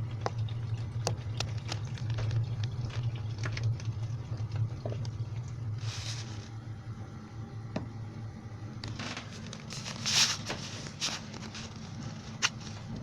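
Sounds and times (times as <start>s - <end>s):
washing machine humming: 0.0s - 13.0s
hissing rustling splashes: 5.5s - 6.6s, 9.0s - 12.9s.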